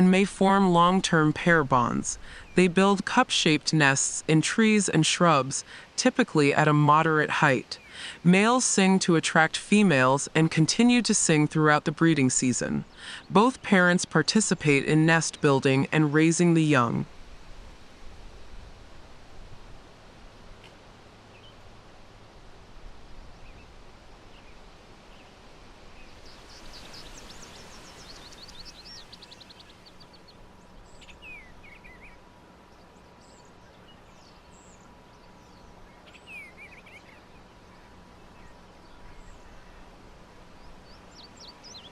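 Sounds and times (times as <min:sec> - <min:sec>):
steady outdoor hiss: 0:00.0 - 0:41.9
mockingbird singing: 0:26.2 - 0:32.2, 0:40.8 - 0:41.9.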